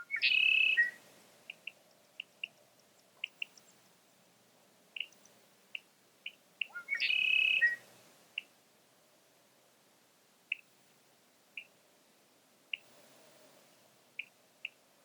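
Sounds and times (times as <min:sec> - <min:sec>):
bird singing loud song: 0:00.0 - 0:04.2, 0:05.0 - 0:07.9
songbird chirps: 0:00.0 - 0:15.0.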